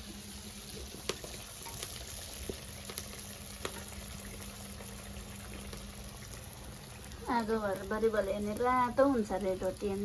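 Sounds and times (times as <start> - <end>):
dough sizzling in hot oil: 0.0 - 10.0
oil popping: 0.5 - 7.2.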